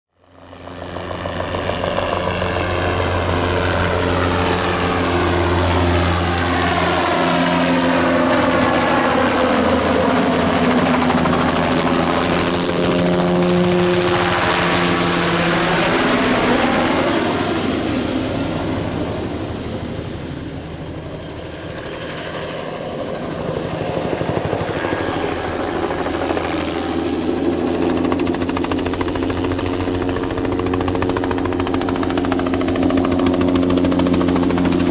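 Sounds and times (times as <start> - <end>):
high turbine whine: 0.5 - 34.9.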